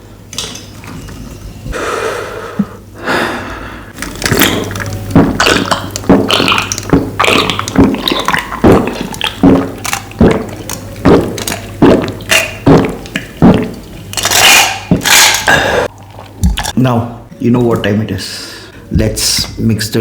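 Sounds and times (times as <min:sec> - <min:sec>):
swallowing gulps: 0:03.9 - 0:14.0.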